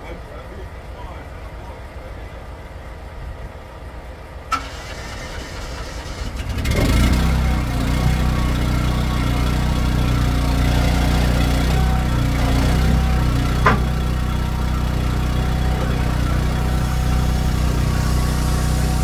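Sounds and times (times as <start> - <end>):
engine cranking and idling: 3.8 - 19.0.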